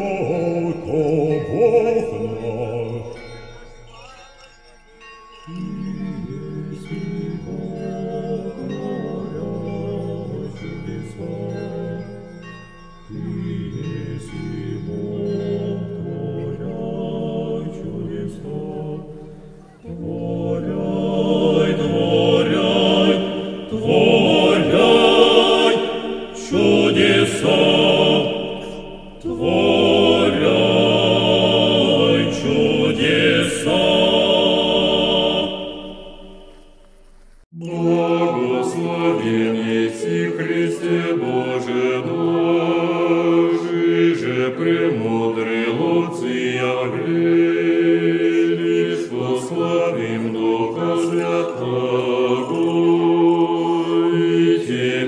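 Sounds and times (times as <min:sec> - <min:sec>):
group chanting: 0:13.1 - 0:36.5, 0:37.6 - 0:55.0.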